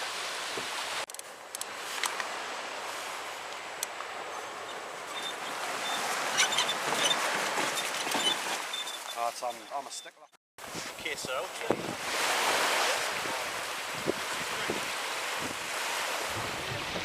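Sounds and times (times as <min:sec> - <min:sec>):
sea water sloshing around kayak: 0:04.7 - 0:09.2.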